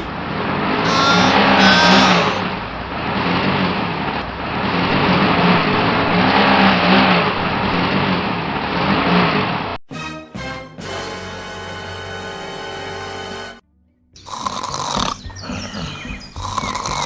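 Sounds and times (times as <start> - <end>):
small motor grinding: 14.3 - 15.2, 16.4 - 17.0.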